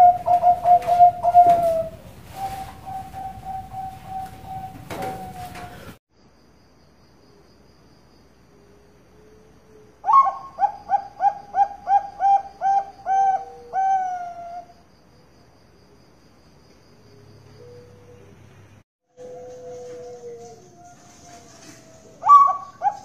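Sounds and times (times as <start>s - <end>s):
dove cooing: 0.0s - 6.0s, 9.7s - 14.7s, 17.2s - 18.4s, 19.2s - 23.0s
high insect trill: 5.7s - 18.6s.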